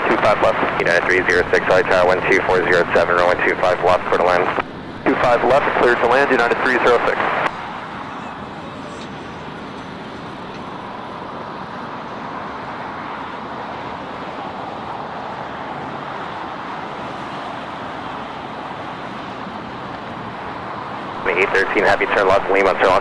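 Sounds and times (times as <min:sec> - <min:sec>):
distant jet engines rushing: 0:00.0 - 0:23.0.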